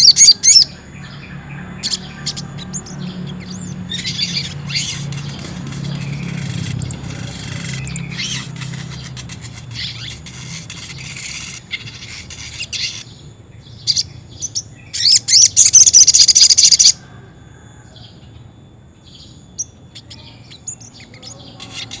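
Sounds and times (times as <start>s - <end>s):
fast rolling bird trill: 3.9s - 13.2s, 21.3s - 22.0s.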